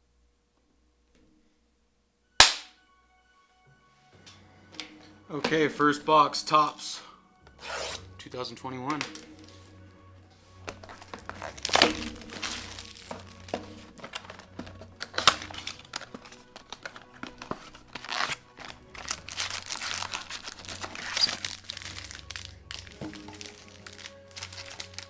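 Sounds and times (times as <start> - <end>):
wrapping torn and crinkled: 10.6 - 25.0.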